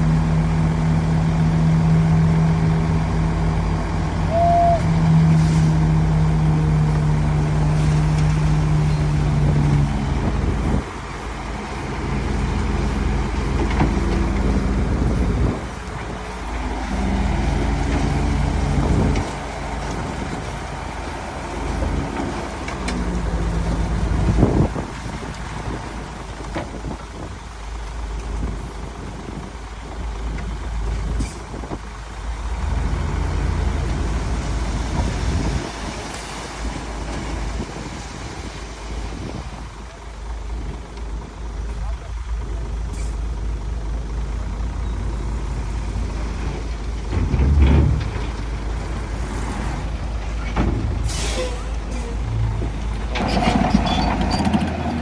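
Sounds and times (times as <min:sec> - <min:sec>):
heavy diesel machinery engines: 0:00.0 - 0:55.0
earthmoving machinery rumbling: 0:40.2 - 0:55.0.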